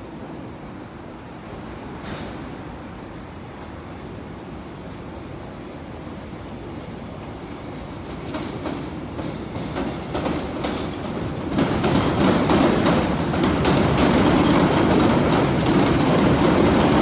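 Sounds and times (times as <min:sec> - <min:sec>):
elevated train approaching: 0:00.0 - 0:17.0
steel wheels clacking over rail joints: 0:07.8 - 0:17.0.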